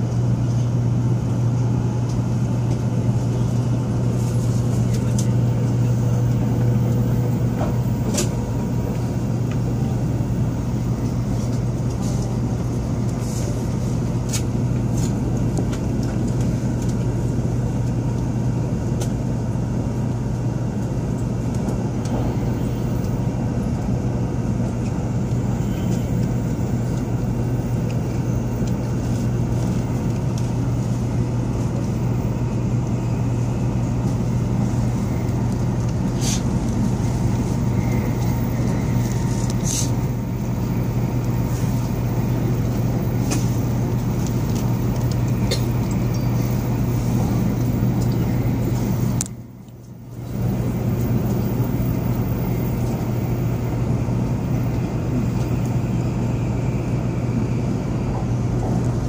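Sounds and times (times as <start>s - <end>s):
train running gear rumble: 0.0s - 59.0s.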